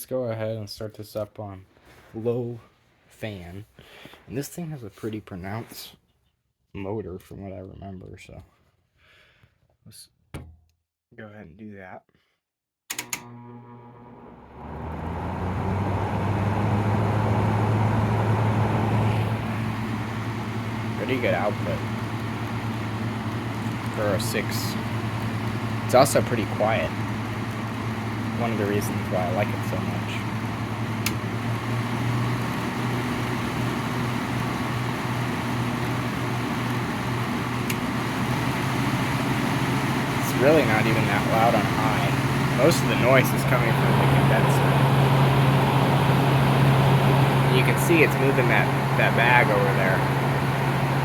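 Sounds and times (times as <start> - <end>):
air conditioner fan humming: 14.4 - 51.0.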